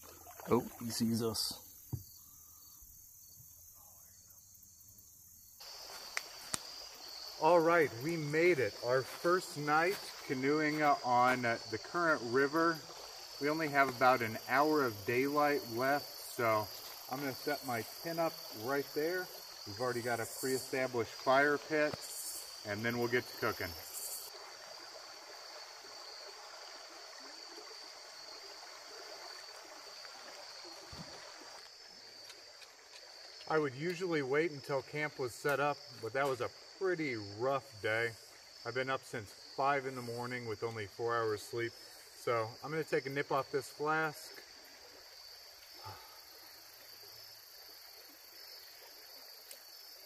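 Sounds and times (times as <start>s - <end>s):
insects droning: 0.0s - 50.0s
river flowing: 5.6s - 33.4s.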